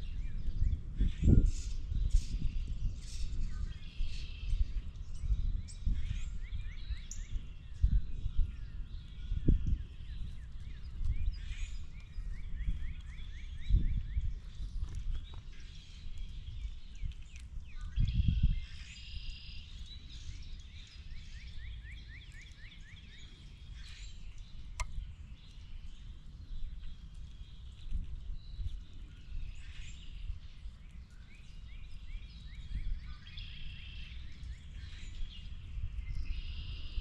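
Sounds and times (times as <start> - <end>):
low outdoor rumble with gusts: 0.0 - 22.1.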